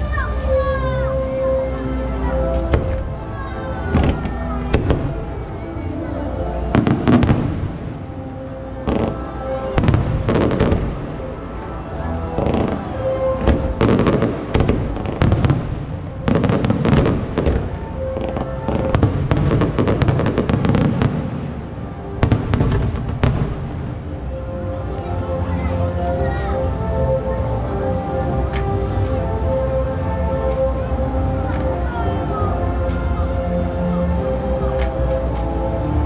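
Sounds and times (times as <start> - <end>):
music playing: 0.0 - 36.0
fireworks bursting: 2.6 - 5.8, 6.6 - 24.2.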